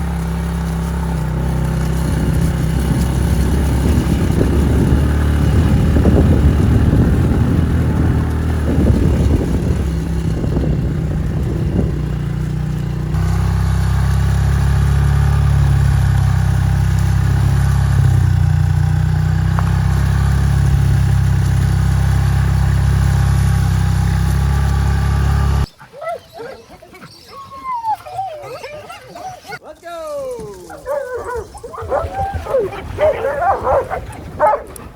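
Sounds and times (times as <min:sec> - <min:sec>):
rough jolting rattles: 0:00.0 - 0:25.4
vehicle engine running: 0:00.0 - 0:25.7.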